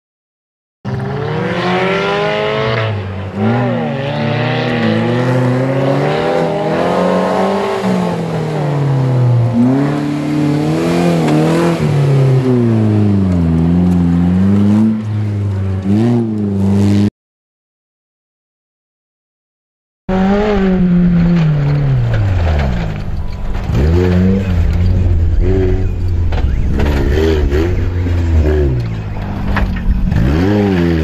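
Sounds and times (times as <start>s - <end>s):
car engine revving hard: 0.9s - 15.1s, 20.1s - 21.9s, 23.7s - 31.0s.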